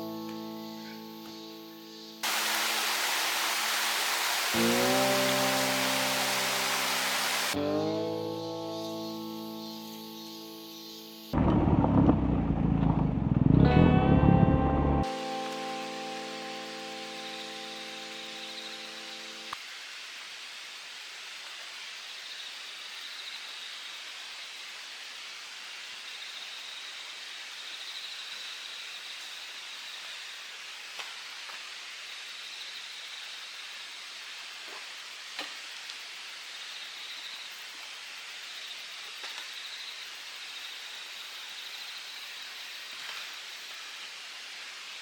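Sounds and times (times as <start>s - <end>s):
insects trilling: 0.0s - 7.6s, 8.2s - 11.4s, 15.1s - 19.6s
mountain stream rushing: 2.2s - 7.6s, 15.1s - 20.8s.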